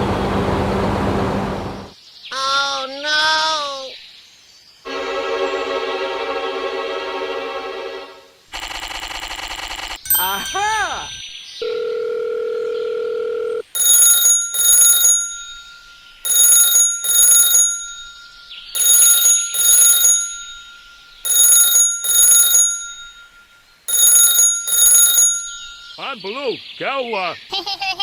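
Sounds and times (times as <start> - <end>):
telephone ringing: 10.1 - 26.0.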